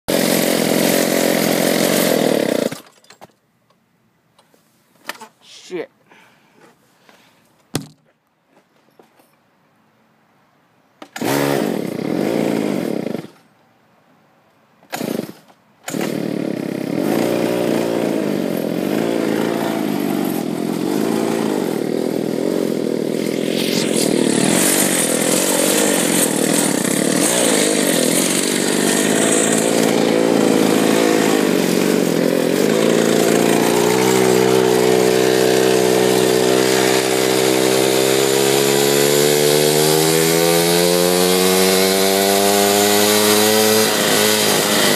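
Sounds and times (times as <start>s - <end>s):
small motorbike engine starting: 0.1s - 3.0s, 11.0s - 13.4s, 14.9s - 44.9s.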